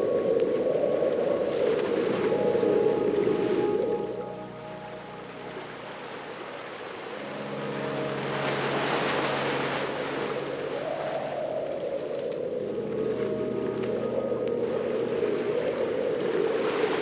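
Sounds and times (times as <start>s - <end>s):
ocean wave washing in: 1.0s - 17.0s.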